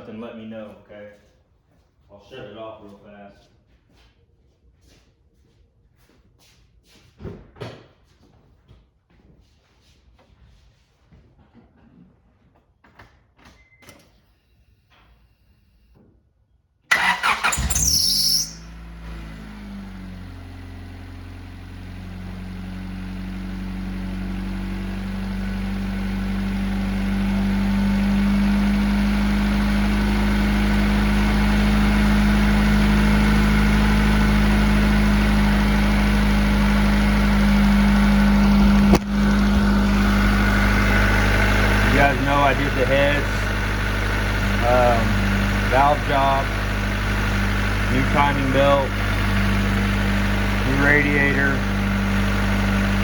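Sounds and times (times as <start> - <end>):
start-up squeal: 16.9 - 18.8
car engine starting and idling: 16.9 - 53.0.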